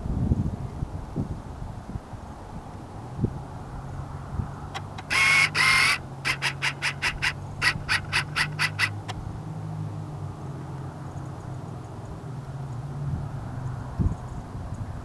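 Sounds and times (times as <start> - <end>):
bird giving harsh calls: 4.8 - 9.1.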